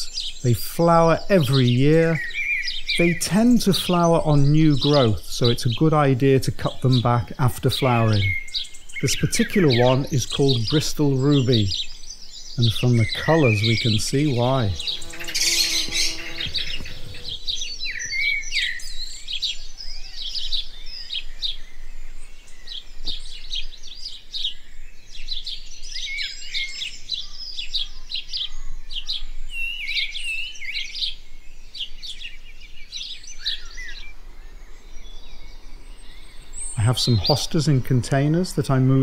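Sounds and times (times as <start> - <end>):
garden birds singing: 0.0 - 39.0.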